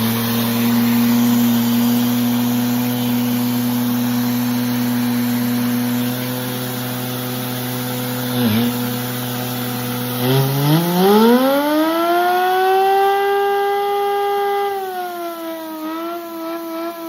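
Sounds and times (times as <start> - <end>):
engine idling and revving: 0.0 - 17.0.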